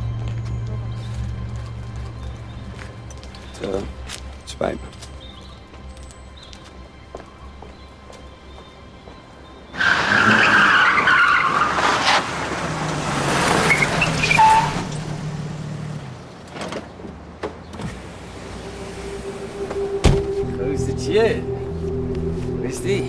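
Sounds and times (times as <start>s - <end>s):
car tyres squealing: 9.7s - 15.2s.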